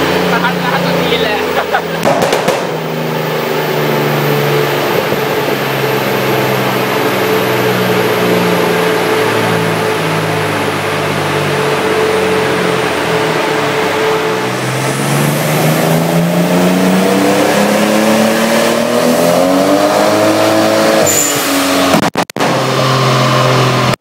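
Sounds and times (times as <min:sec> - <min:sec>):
steady whine: 0:00.0 - 0:18.4
car engine misfiring on dyno: 0:00.0 - 0:24.0.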